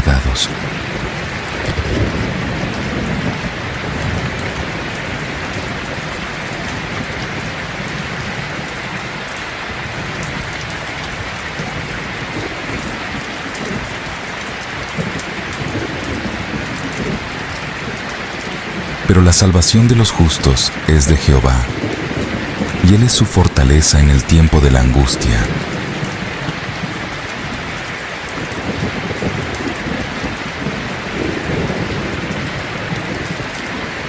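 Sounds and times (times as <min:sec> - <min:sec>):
thunder rumbling: 0:00.0 - 0:09.2, 0:21.5 - 0:22.9, 0:25.4 - 0:34.0
steady rain falling: 0:00.0 - 0:34.0.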